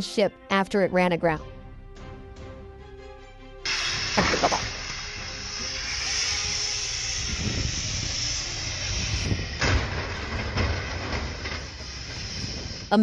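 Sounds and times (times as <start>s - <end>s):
wind-driven snow hissing: 3.7s - 13.0s
wind buffeting microphone: 6.4s - 13.0s.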